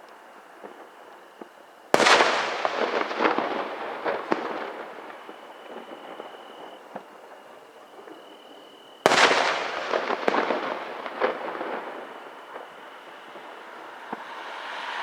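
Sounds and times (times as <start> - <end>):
fireworks crackling pops: 0.0 - 15.0
firework shell burst: 9.0 - 15.0.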